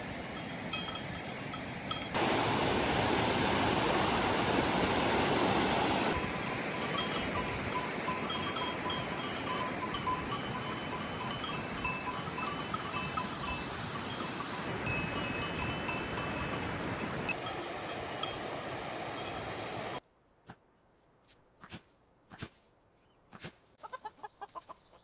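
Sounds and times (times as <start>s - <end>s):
cowbells clanking: 0.0s - 2.2s, 6.1s - 20.0s.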